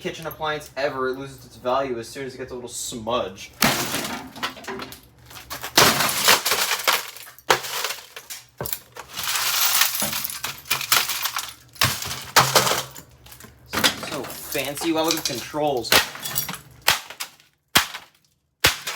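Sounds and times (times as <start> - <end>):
microwave being smashed: 3.6 - 18.9
glass and metal pieces clinking: 4.4 - 16.8.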